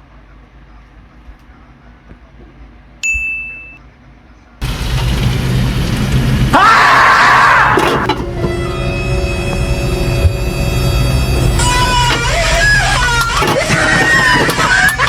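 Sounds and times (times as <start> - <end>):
high bright ding: 3.0 - 3.8
noisy rumble with low hum: 4.0 - 15.0.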